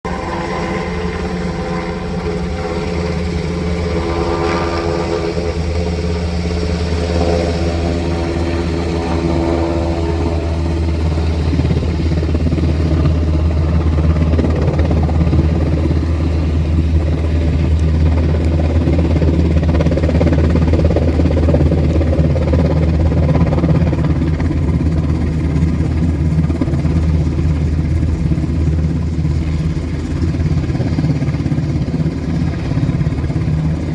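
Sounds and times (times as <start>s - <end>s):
helicopter low drone: 0.0s - 33.9s
higher engine tone: 0.1s - 19.3s.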